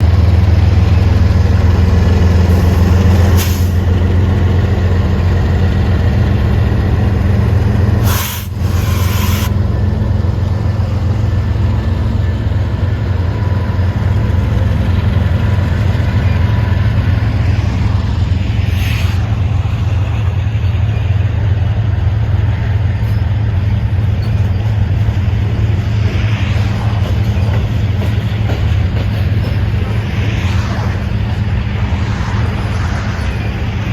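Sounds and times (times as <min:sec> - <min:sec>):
locomotive engine drone: 0:00.0 - 0:33.9
short hisses: 0:08.0 - 0:09.6.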